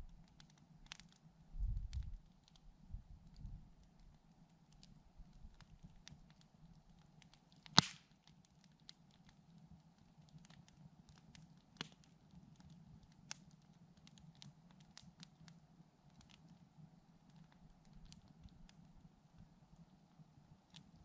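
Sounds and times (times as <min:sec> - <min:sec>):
burning wood popping: 0:00.0 - 0:16.5
campfire crackling: 0:00.0 - 0:21.0.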